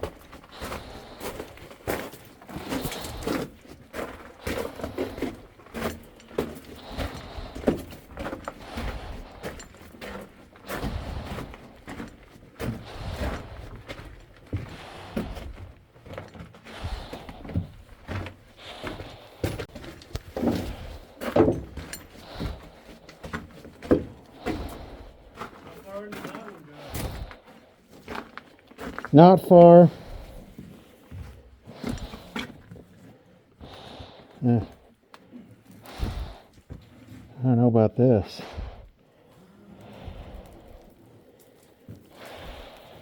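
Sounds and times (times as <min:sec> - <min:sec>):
carried gear rattling: 0:00.0 - 0:27.6, 0:29.7 - 0:37.1, 0:39.5 - 0:43.0
footsteps on rock and gravel: 0:00.0 - 0:34.9, 0:35.7 - 0:36.8, 0:39.9 - 0:43.0.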